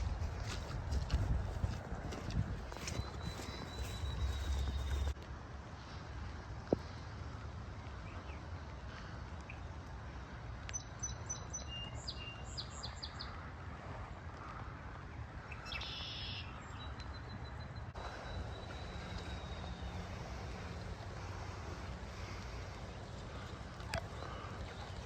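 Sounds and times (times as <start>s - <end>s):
low background rumble: 0.0s - 5.2s
songbirds chirping: 0.1s - 5.2s, 15.0s - 25.0s.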